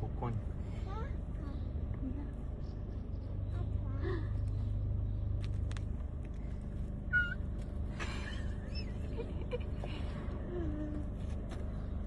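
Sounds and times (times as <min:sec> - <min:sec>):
car engine idling: 0:00.0 - 0:12.0
short high squeak: 0:07.1 - 0:07.5.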